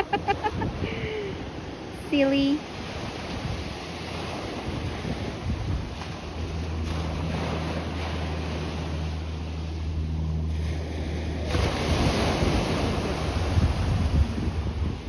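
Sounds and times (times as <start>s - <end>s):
wind buffeting microphone: 0.0s - 2.0s, 2.7s - 15.0s
low steady hum: 0.0s - 15.0s
ocean surf washing in: 0.0s - 15.0s.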